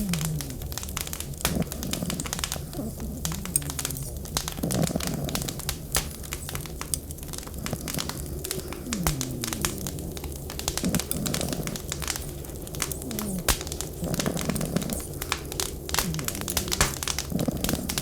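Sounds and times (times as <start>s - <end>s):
cat purring: 0.0s - 18.0s
wood fire crackling and popping: 0.0s - 18.0s.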